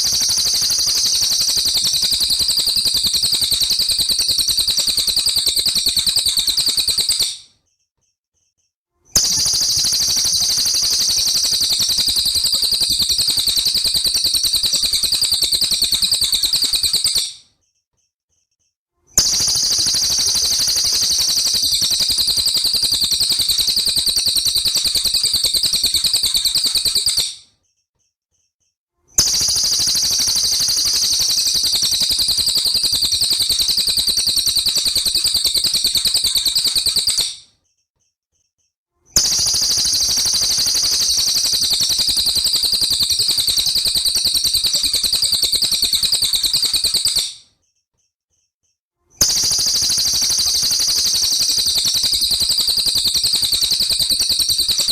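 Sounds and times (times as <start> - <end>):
songbird high-pitched trill: 0.0 - 7.5, 9.2 - 17.4, 19.2 - 27.4, 29.2 - 37.4, 39.2 - 47.4, 49.2 - 54.9.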